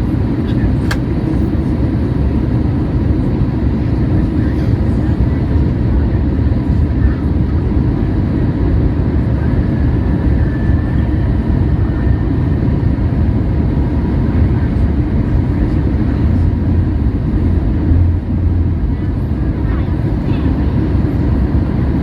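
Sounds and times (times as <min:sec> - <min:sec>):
airliner cabin engine rumble: 0:00.0 - 0:22.0.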